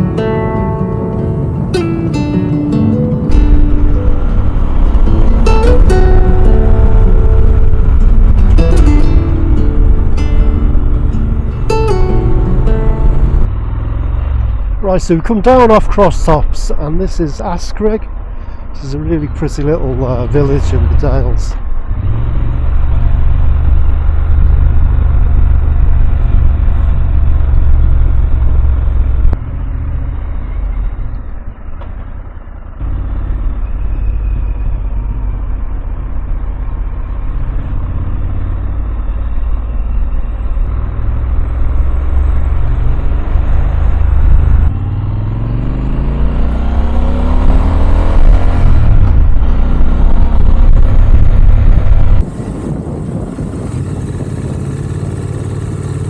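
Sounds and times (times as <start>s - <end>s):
motorcycle engine rumble: 0.0s - 56.0s
wind noise: 3.3s - 13.6s, 38.8s - 55.6s.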